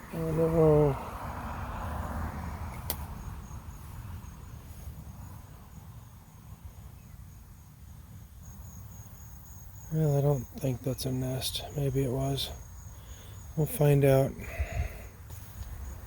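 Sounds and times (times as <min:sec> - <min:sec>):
crickets chirping: 0:00.0 - 0:16.0
sharp click: 0:02.7 - 0:03.1.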